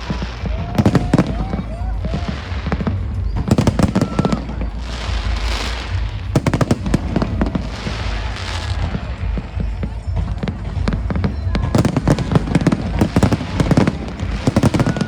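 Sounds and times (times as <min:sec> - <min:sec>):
firework bangs: 0:00.0 - 0:15.0
steady low rumble: 0:00.0 - 0:15.0.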